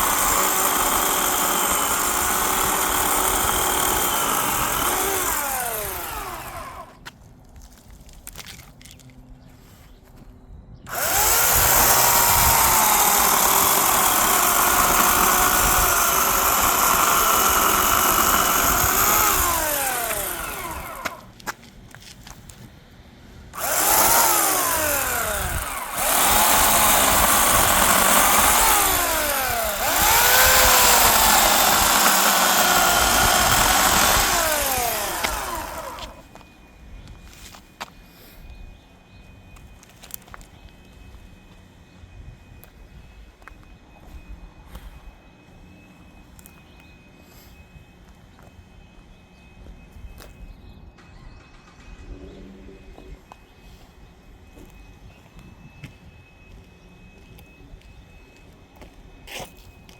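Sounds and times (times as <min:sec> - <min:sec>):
electric chainsaw cutting log: 0:00.0 - 0:07.0, 0:10.9 - 0:21.3, 0:23.6 - 0:36.4.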